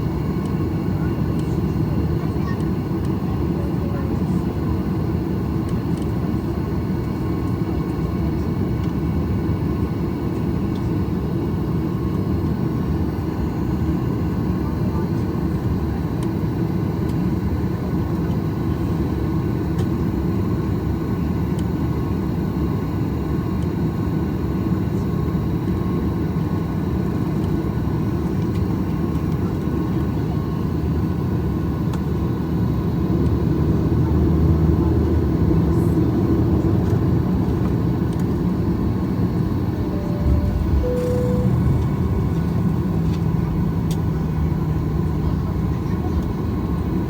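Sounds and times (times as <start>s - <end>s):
aircraft cabin rumbling hum: 26.4s - 47.0s
short cabin tone: 39.4s - 47.0s.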